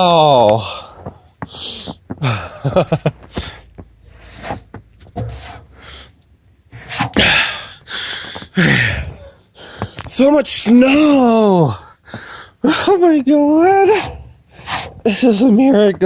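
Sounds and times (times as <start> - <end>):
man breathing hard and gasping: 0.6 - 2.6, 3.3 - 4.6, 5.4 - 6.2, 6.8 - 10.1, 11.7 - 12.8.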